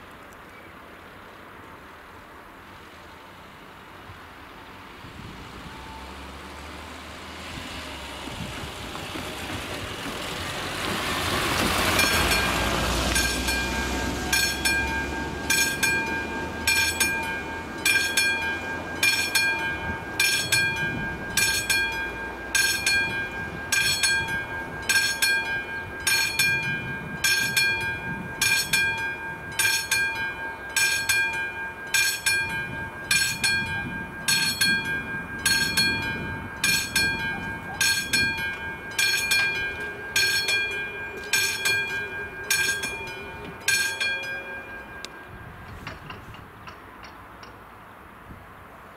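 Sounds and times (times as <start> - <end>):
level crossing warning bell: 5.4 - 6.6, 11.7 - 47.2.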